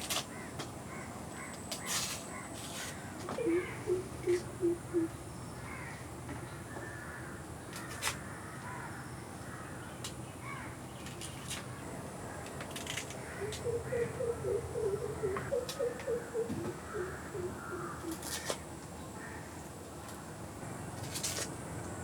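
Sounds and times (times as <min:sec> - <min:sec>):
birds calling: 0:00.3 - 0:18.6
higher bird chirps: 0:03.4 - 0:05.7, 0:13.4 - 0:18.2.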